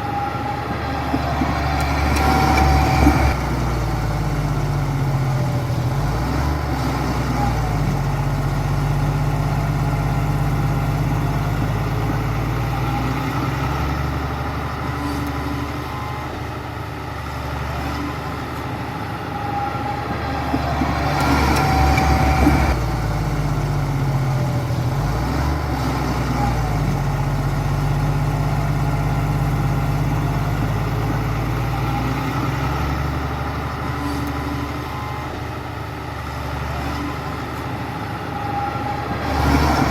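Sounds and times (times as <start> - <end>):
heavy diesel engine working: 0.0 - 39.9.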